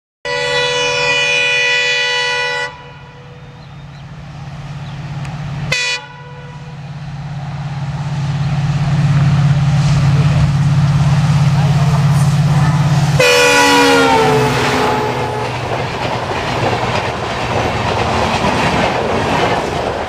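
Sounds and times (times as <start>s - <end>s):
locomotive horn blasts: 0.2s - 3.6s, 5.7s - 6.8s, 13.2s - 15.7s
low rumble of approaching train: 0.3s - 20.0s.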